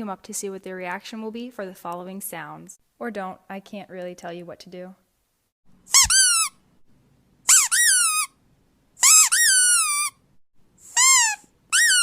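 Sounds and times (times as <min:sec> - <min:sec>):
squeaky dog toy squeaks: 0:05.9 - 0:06.6, 0:07.5 - 0:08.4, 0:09.0 - 0:10.2, 0:10.8 - 0:12.0.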